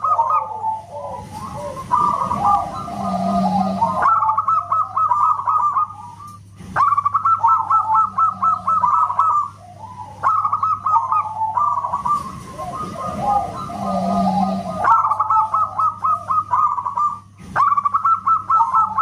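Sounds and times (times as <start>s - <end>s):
dove cooing: 0.0s - 19.0s.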